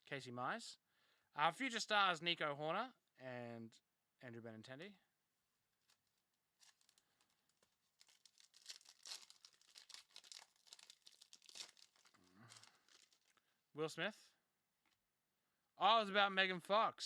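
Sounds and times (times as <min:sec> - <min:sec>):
wrapper crinkling and tearing: 0:05.8 - 0:13.4.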